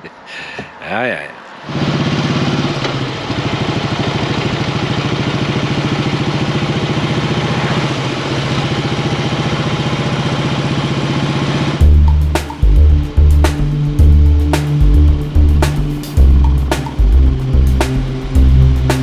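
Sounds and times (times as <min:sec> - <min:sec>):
motorcycle engine idling: 0:02.9 - 0:10.2, 0:11.8 - 0:19.0.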